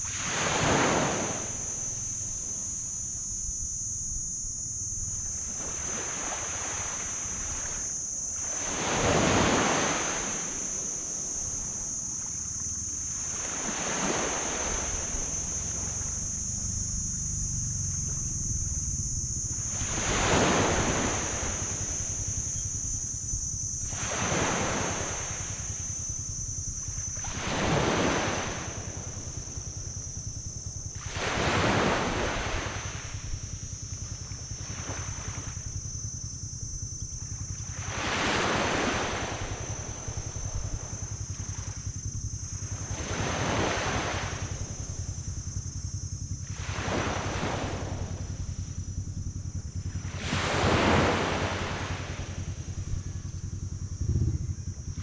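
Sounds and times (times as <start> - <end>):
small waves breaking on sand: 0.0 - 1.7, 5.4 - 7.8, 8.4 - 11.8, 13.2 - 16.0
steady high hiss: 0.0 - 54.0
low rumble: 51.4 - 55.0.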